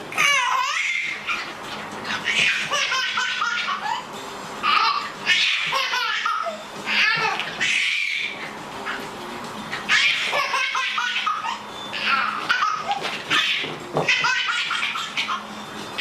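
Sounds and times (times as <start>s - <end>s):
small child laughing: 2.2s - 4.1s, 9.9s - 15.5s.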